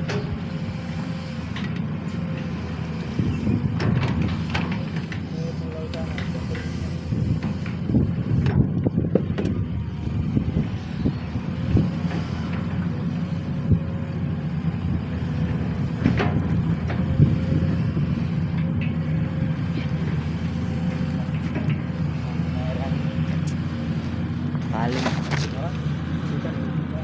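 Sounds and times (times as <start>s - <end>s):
machine knocks and clanks: 0.0s - 10.7s, 15.0s - 23.4s
excavator diesel engine running: 0.0s - 27.0s.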